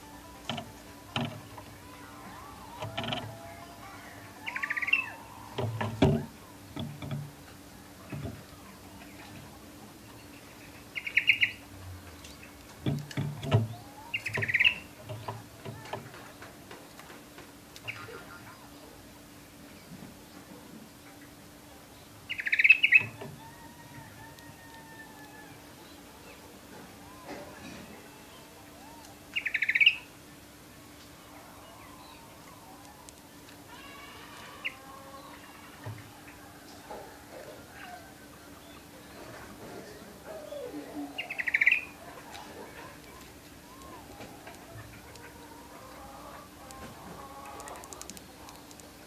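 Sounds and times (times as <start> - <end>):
canary trilling: 0.1 - 7.4, 10.2 - 16.2, 22.2 - 30.2, 31.2 - 36.6, 40.4 - 48.7
sharp knocks and clicks: 0.4 - 1.7, 2.8 - 3.4, 5.5 - 8.5, 12.6 - 17.5
soft bird chirps: 1.1 - 6.8, 8.0 - 12.7, 13.4 - 15.5, 21.2 - 24.6, 27.9 - 33.6, 40.3 - 48.9.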